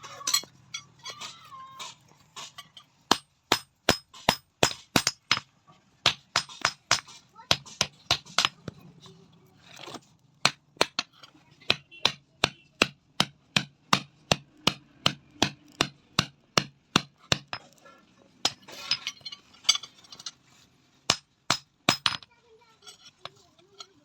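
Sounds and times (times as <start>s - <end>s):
rustling scraping noise: 18.7s - 21.0s.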